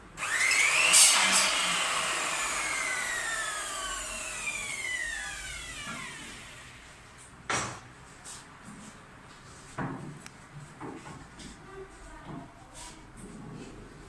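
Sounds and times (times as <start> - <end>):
power tool motor whine: 0.2 - 7.1.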